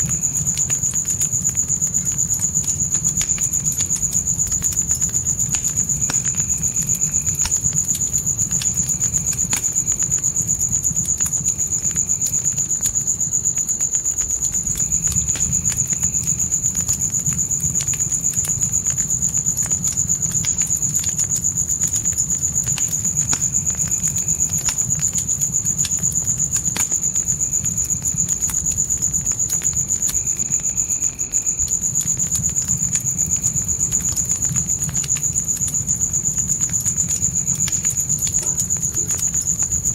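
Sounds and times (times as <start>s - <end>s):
crickets chirping: 0.0s - 39.9s
low rumble of flames: 0.0s - 39.9s
wood fire crackling: 0.0s - 39.9s.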